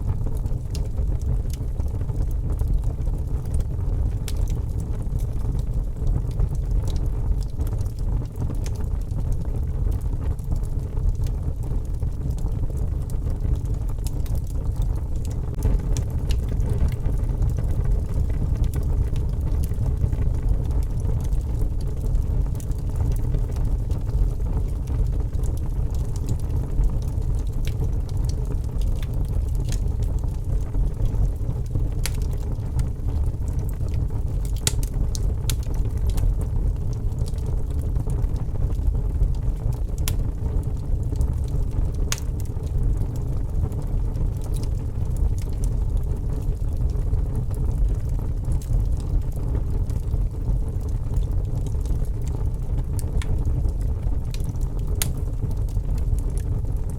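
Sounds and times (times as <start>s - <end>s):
low rumble of fire: 0.0s - 56.9s
wood fire crackling: 0.0s - 56.9s.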